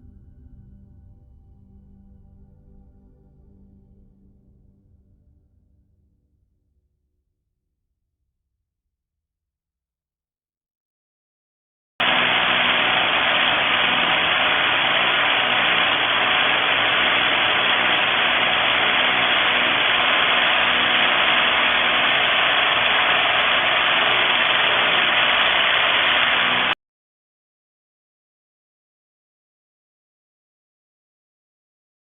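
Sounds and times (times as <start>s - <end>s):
rotary hammer running loudly: 12.0s - 26.8s.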